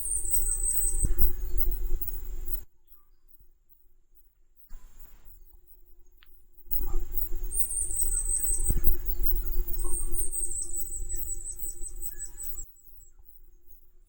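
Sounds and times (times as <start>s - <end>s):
bird singing high thin notes: 0.0s - 2.6s, 6.7s - 13.2s
low rumble: 6.7s - 12.7s.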